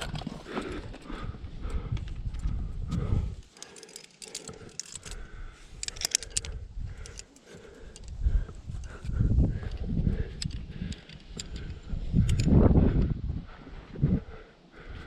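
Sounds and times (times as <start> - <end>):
low rumbling noise: 0.0 - 3.4, 4.6 - 15.0
metal climbing gear jingling: 3.3 - 12.6.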